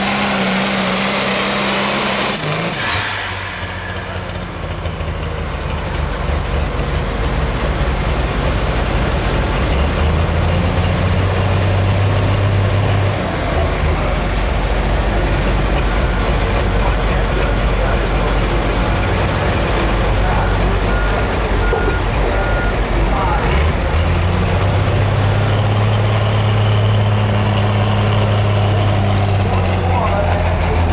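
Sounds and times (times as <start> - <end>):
high engine whistle: 0.0 - 5.2, 12.2 - 28.7
tractor engine running at low revs: 0.0 - 30.9.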